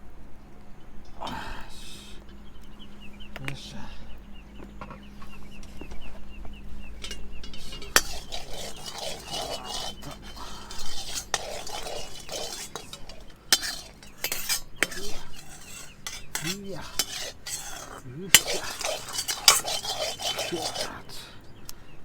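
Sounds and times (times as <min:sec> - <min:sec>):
metal utensil scraping cookware: 0:07.0 - 0:21.2.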